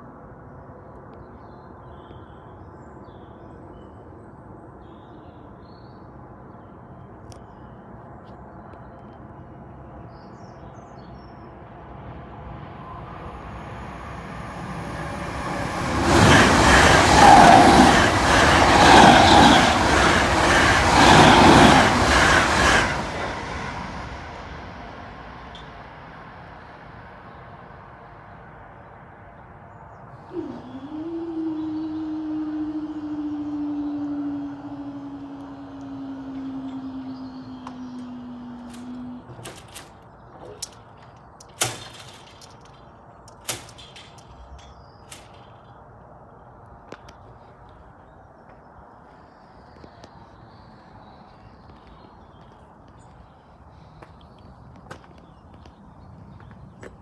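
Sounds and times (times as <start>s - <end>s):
train passing at speed: 0.0s - 57.0s.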